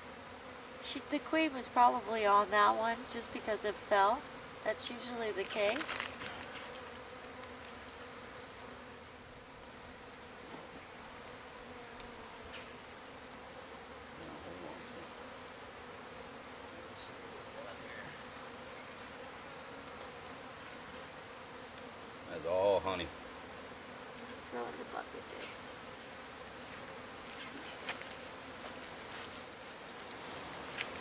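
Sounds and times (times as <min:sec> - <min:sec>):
bees buzzing: 0:00.0 - 0:31.0.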